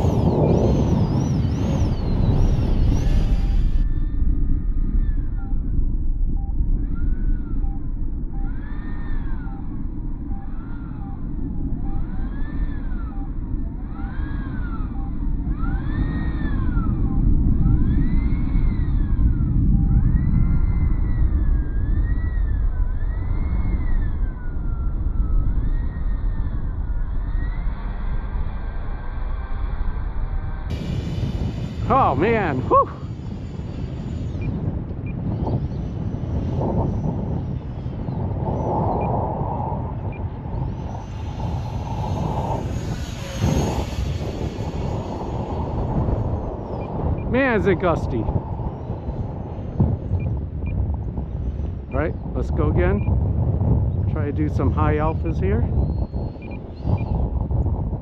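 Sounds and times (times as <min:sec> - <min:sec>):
model airplane motor whine: 0:00.0 - 0:04.0, 0:11.8 - 0:19.5, 0:21.1 - 0:38.7, 0:40.2 - 0:46.9
model airplane motor whining: 0:00.0 - 0:04.0, 0:30.7 - 0:37.0, 0:40.7 - 0:46.8
wind rumble on microphone: 0:00.0 - 0:58.0.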